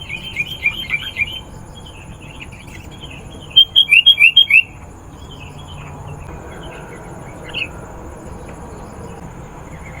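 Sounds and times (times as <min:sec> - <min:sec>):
high-pitched insect trill: 0:00.0 - 0:10.0
low rumble: 0:06.0 - 0:10.0.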